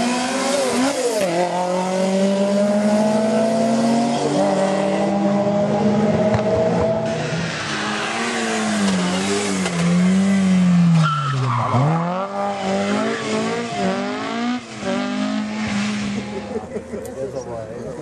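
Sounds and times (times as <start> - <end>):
rally car engine revving: 0.0 - 17.1.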